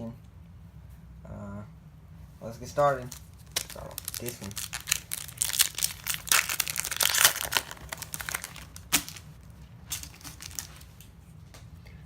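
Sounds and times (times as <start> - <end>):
foil wrapper tearing and crinkling: 3.0 - 11.0.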